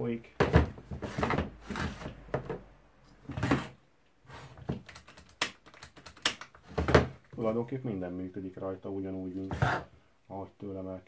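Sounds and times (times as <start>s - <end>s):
rustling scrapes and clunks: 0.4s - 4.8s
sharp clicks and knocks: 4.7s - 7.2s.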